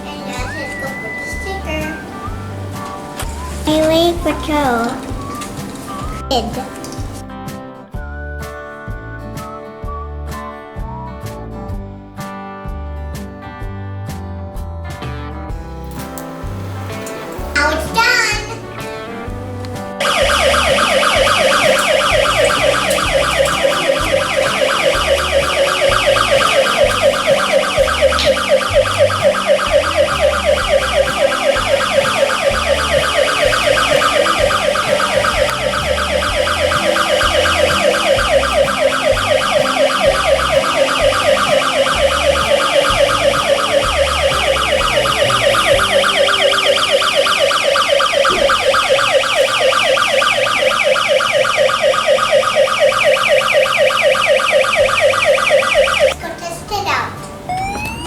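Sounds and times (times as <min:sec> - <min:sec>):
electronic siren warbling: 0:00.0 - 0:03.7, 0:20.0 - 0:56.2, 0:57.5 - 0:58.0.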